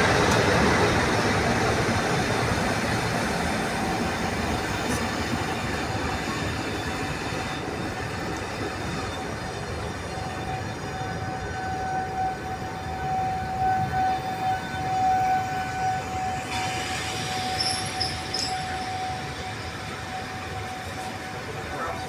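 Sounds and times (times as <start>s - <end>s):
train rumble: 0.0s - 22.0s
steady high-pitched tone: 13.0s - 22.0s.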